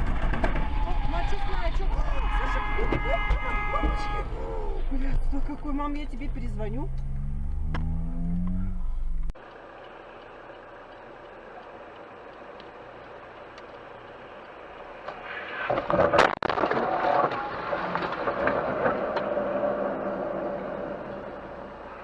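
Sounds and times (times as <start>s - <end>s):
car road noise: 0.0s - 22.0s
loud crash: 15.6s - 21.4s.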